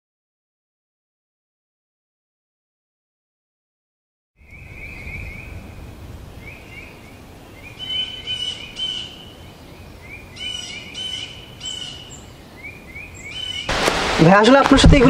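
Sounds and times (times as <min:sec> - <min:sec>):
birds chirping: 0:04.4 - 0:15.0.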